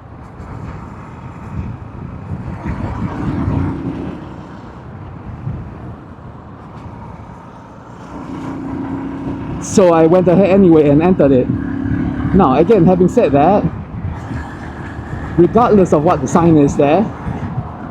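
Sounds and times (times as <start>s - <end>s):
wind and road noise: 0.0s - 17.9s
motorcycle engine running: 2.6s - 4.8s, 8.0s - 17.9s.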